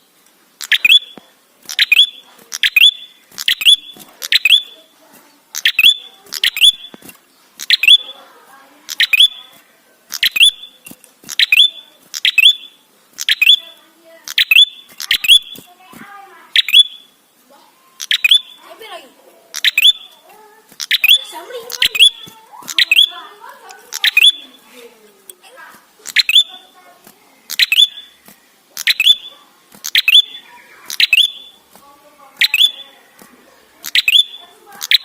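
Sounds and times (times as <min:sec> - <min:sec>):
bird chirping sharply: 0:00.6 - 0:04.9, 0:05.5 - 0:07.0, 0:07.6 - 0:08.2, 0:08.9 - 0:15.7, 0:16.5 - 0:17.2, 0:18.0 - 0:18.7, 0:19.6 - 0:20.2, 0:20.8 - 0:23.3, 0:23.9 - 0:24.6, 0:26.0 - 0:26.8, 0:27.5 - 0:28.2, 0:28.8 - 0:31.7, 0:32.4 - 0:33.0, 0:33.8 - 0:35.0.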